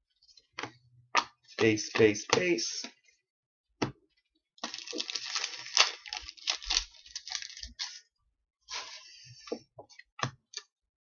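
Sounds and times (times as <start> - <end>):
foil wrapper crinkling and tearing: 4.6 - 8.0
cards being handled: 4.7 - 8.0.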